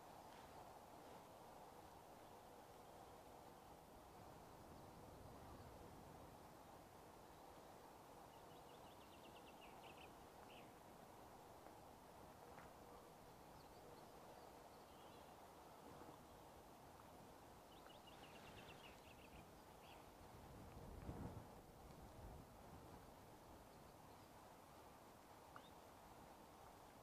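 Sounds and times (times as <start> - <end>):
songbird singing: 7.1 - 11.3, 12.4 - 20.8, 23.4 - 24.7, 25.4 - 26.0.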